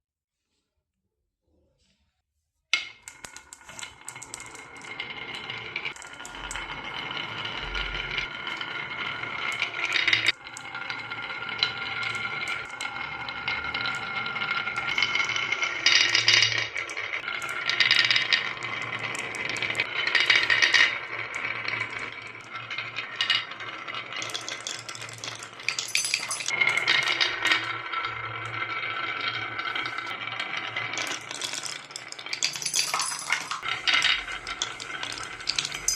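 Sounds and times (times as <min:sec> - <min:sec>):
glass marbles rolling and clattering: 0:02.8 - 0:35.9.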